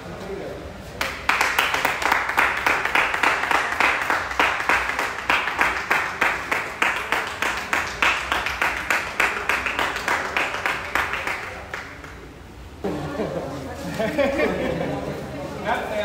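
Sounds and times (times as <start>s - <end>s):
people clapping in time: 0.9s - 12.4s.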